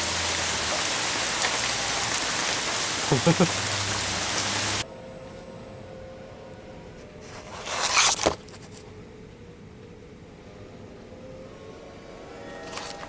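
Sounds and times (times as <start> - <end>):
rustling scrape: 7.2 - 8.9.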